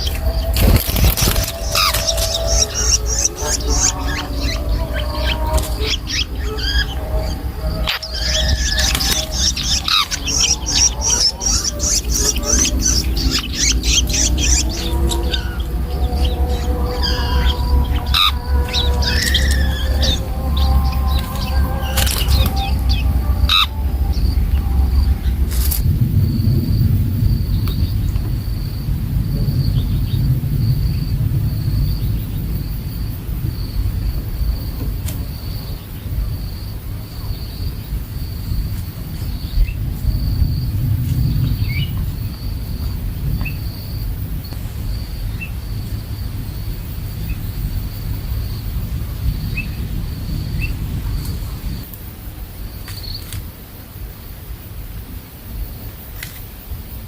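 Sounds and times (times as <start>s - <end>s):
bird chicks chirping: 0.0s - 26.4s
low hum: 0.0s - 52.4s
loud low rumble: 0.0s - 52.8s.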